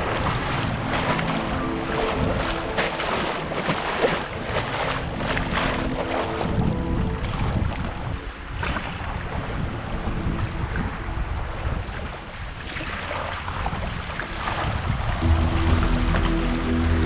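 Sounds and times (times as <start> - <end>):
water washing against canoe: 0.0 - 17.0
wind rumbling on microphone: 0.0 - 17.0.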